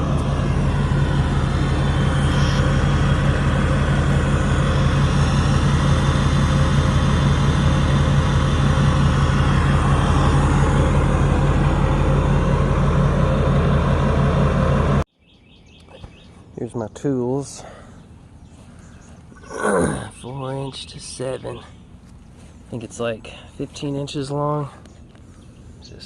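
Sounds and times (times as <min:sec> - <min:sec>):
diesel truck engine idling: 0:00.0 - 0:15.1.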